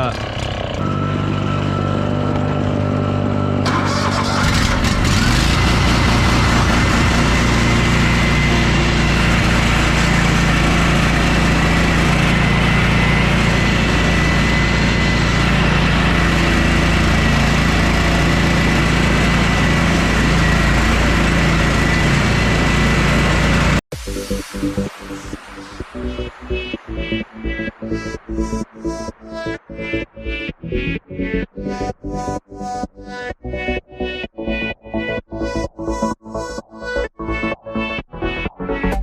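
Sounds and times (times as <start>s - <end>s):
engine revving: 0.0s - 30.4s.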